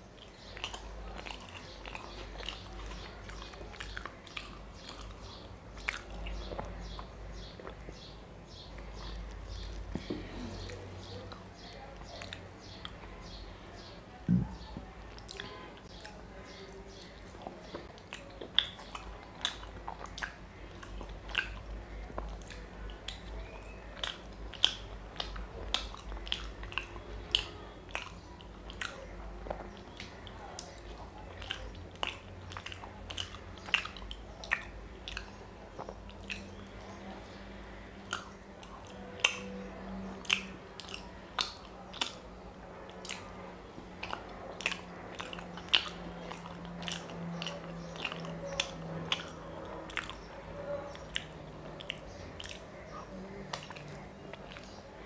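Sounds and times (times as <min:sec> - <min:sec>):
chewing soft sweet: 0:00.0 - 0:13.9, 0:14.6 - 0:55.0
lip smacks: 0:14.3 - 0:39.5, 0:40.2 - 0:54.9.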